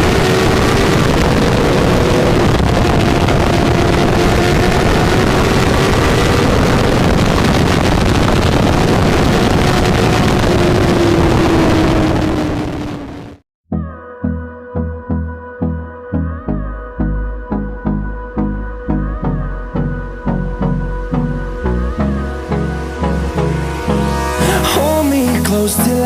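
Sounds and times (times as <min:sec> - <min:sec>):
wind rush: 0:00.0 - 0:13.4.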